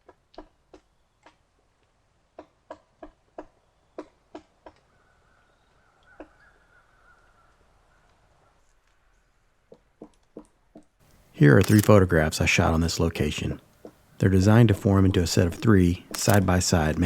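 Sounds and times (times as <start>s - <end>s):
woodpecker pecking at wood: 13.0s - 17.0s.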